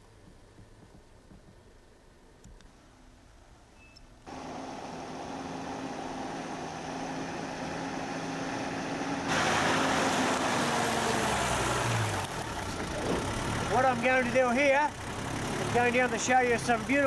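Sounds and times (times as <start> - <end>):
vehicle engine running: 4.3 - 17.0.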